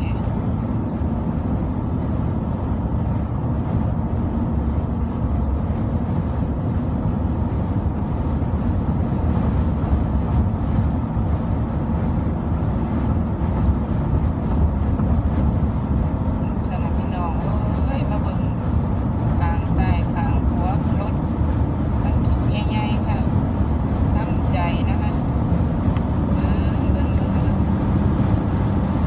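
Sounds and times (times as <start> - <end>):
big trucks passing: 0.0 - 29.0
road and engine noise: 0.0 - 29.0.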